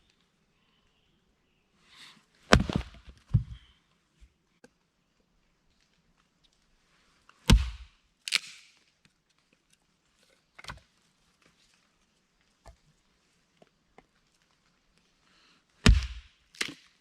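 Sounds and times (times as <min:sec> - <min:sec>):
heavy thud: 0:02.5 - 0:03.6.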